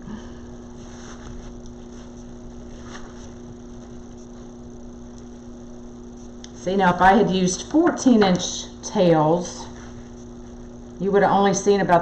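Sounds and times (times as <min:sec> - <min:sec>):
low electrical hum: 0:00.0 - 0:12.0
faint rustles: 0:00.1 - 0:06.4.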